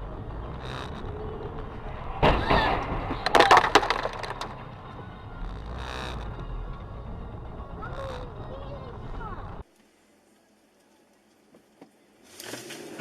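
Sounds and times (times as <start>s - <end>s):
heavy vehicle impact: 0.0s - 8.4s
road noise: 0.0s - 10.8s
cracking and crunching: 0.3s - 6.6s.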